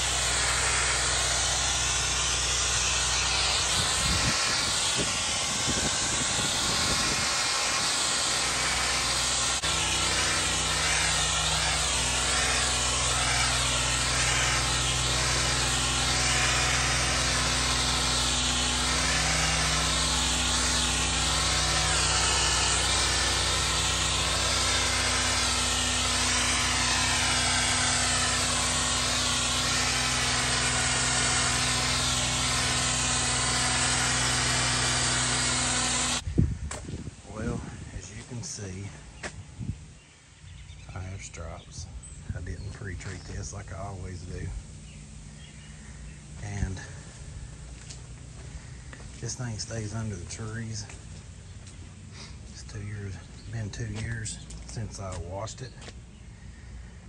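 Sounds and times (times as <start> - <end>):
high-pressure water hissing: 0.0 - 36.2
pressure washer humming: 0.0 - 39.5, 40.2 - 57.0.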